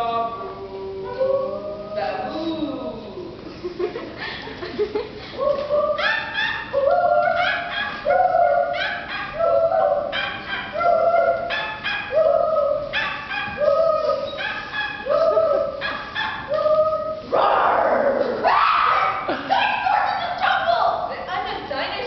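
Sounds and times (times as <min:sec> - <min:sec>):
people making yelping calls: 0:05.4 - 0:21.1.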